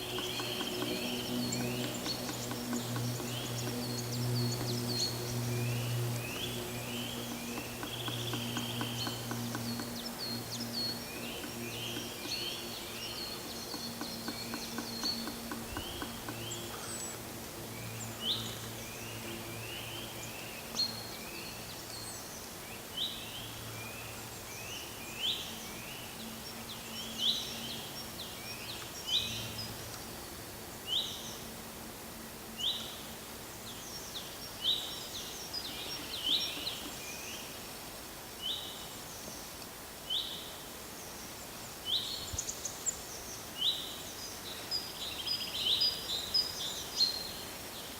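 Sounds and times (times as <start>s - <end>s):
small birds chirping: 0.0s - 17.2s, 34.7s - 37.5s
low steady hum: 0.0s - 37.9s
outdoor background noise: 0.0s - 47.9s.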